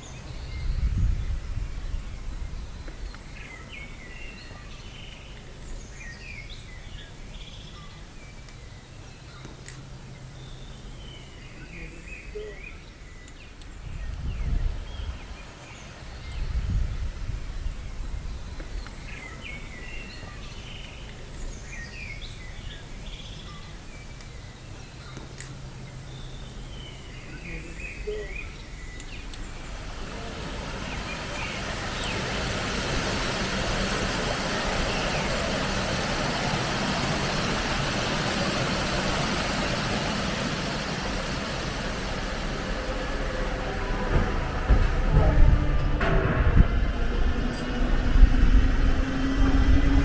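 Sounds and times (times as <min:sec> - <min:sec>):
low outdoor hum and hiss: 0:00.0 - 0:50.0
birds chirping: 0:11.6 - 0:18.2, 0:29.0 - 0:46.1
low background rumble: 0:13.1 - 0:18.6, 0:29.0 - 0:50.0.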